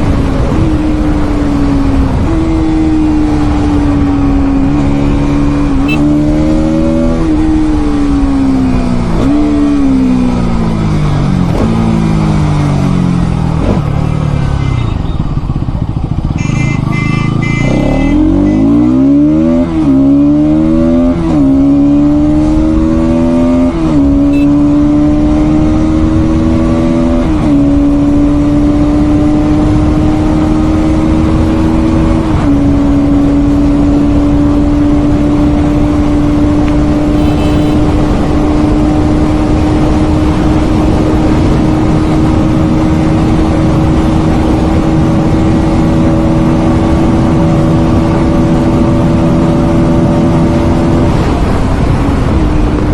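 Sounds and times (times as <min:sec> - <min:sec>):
motorcycle engine accelerating through gears: 0:00.0 - 0:52.9.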